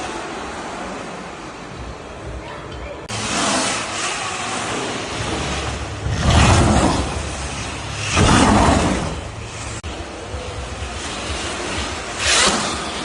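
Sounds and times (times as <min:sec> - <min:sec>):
electric dirt bikes whooshing: 0:03.1 - 0:13.0.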